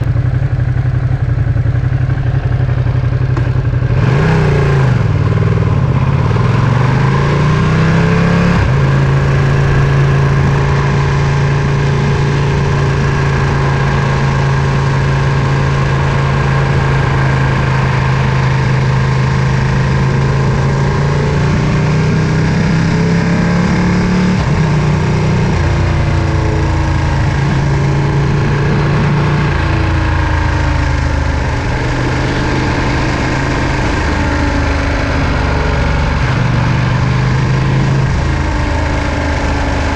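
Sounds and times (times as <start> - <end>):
motorcycle engine and exhaust: 0.0 - 39.9
rush of noise: 0.0 - 39.9.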